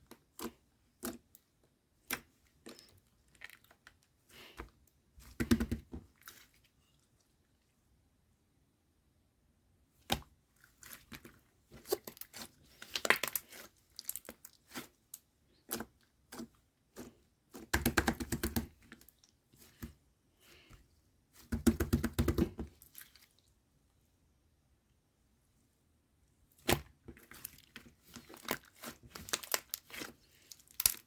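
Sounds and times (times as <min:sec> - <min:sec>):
bead slime clicking and crackling: 0:27.4 - 0:31.0.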